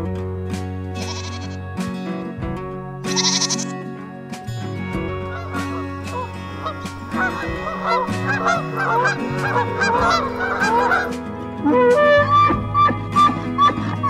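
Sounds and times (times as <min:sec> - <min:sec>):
background music: 0:00.0 - 0:14.0
geese honking: 0:05.2 - 0:14.0.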